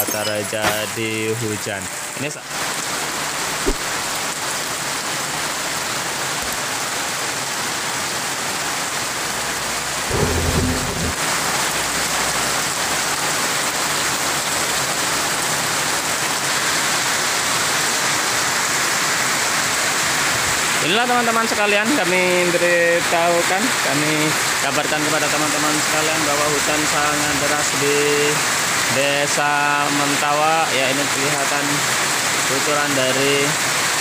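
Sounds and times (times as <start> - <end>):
heavy rain pouring: 0.2 - 34.0
low rumble: 10.1 - 11.8.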